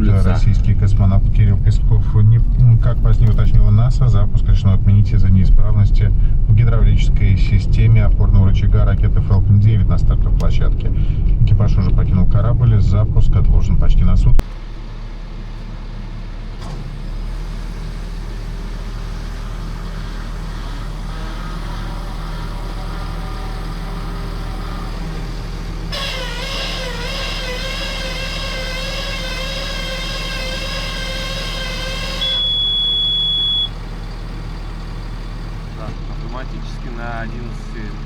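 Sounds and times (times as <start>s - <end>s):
vehicle engine and road hum: 0.0s - 38.0s
sustained wavering pitched tone: 26.0s - 33.8s
high beep: 32.2s - 33.8s.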